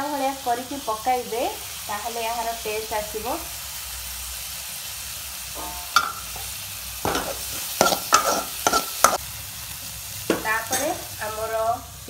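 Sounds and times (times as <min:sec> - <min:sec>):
vegetables sizzling in pan: 0:00.0 - 0:12.0
steel spoon scraping pan: 0:05.6 - 0:09.2.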